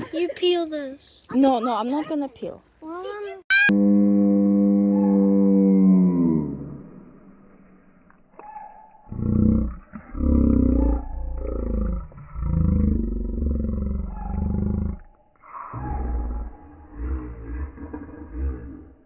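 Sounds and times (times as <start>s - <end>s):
deep animal roars: 3.8s - 7.5s, 9.0s - 19.0s.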